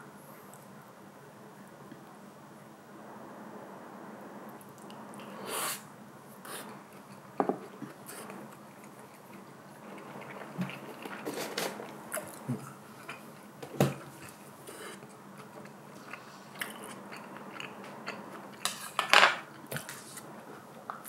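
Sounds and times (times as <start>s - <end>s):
chewing with wet clicks: 15.0s - 18.8s.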